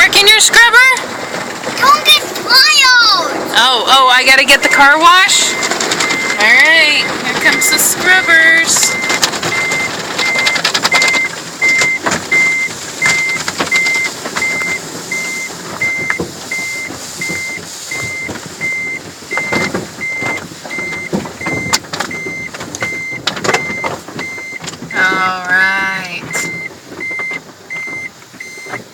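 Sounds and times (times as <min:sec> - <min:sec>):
car wash brushes scrubbing: 0:00.1 - 0:28.9
high beep: 0:04.5 - 0:28.8.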